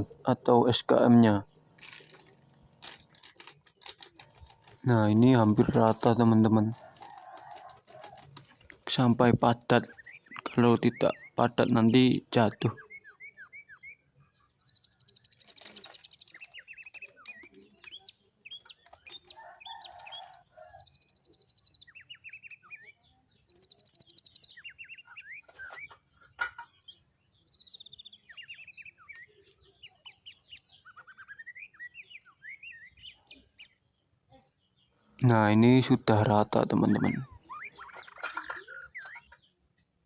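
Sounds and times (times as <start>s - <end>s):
songbirds chirping: 0.0s - 40.0s
buzzy bird trills: 26.8s - 33.8s, 36.1s - 39.4s.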